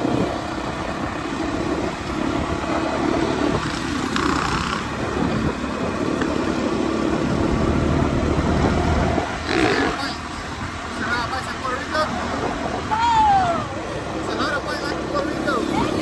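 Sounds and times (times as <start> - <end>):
dirt bike engine running: 0.0 - 10.4.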